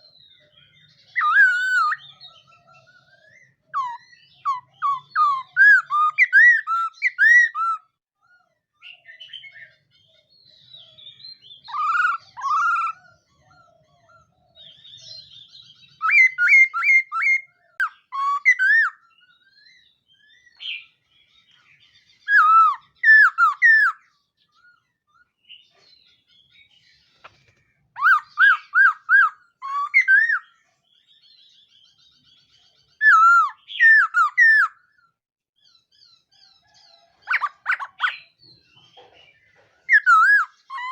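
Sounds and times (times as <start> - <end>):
bird singing whistled phrases: 0.2 - 7.9, 10.6 - 13.0, 14.6 - 21.0, 22.2 - 24.1, 28.0 - 30.6, 33.0 - 34.9, 37.2 - 38.4, 39.9 - 40.9.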